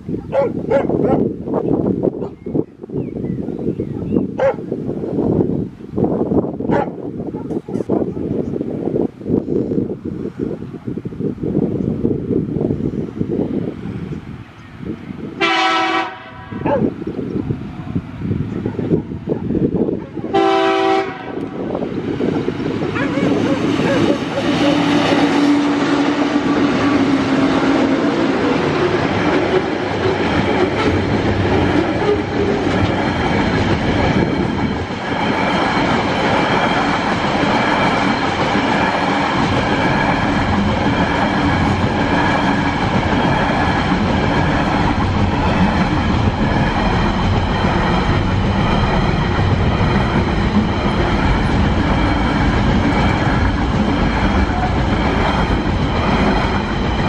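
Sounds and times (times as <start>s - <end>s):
diesel locomotive engine drone: 0.0s - 57.0s
wagons rolling on rails: 22.3s - 57.0s.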